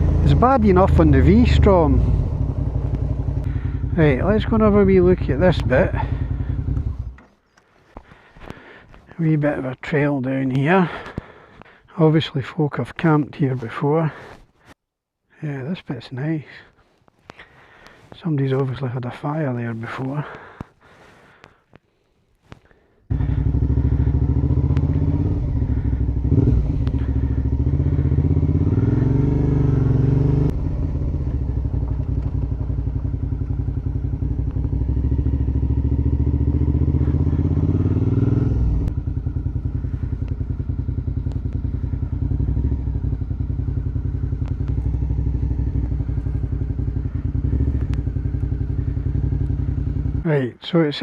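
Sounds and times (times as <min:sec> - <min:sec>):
motorcycle engine revving: 0:00.0 - 0:07.3, 0:23.1 - 0:50.3.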